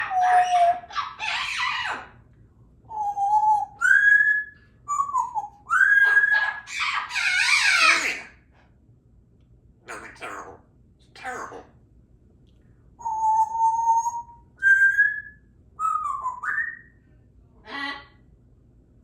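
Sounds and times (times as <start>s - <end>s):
parrot raspy squawks: 0.0s - 2.2s, 5.9s - 8.4s, 9.8s - 10.6s
parrot whistling notes: 2.9s - 8.2s.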